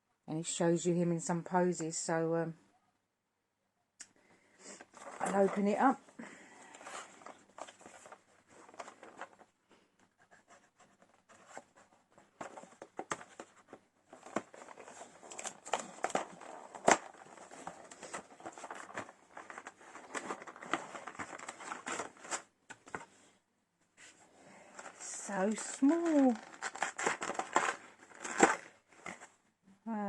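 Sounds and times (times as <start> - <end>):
cardboard packaging scratching and crinkling: 4.9 - 5.8, 6.7 - 9.4, 10.2 - 23.0, 24.7 - 29.3.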